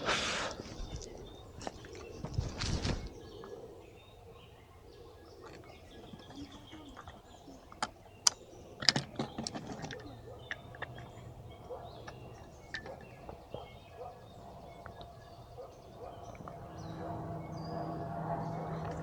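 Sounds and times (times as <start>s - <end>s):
rustling: 0.6s - 3.2s
faint bird chirps: 0.6s - 18.0s.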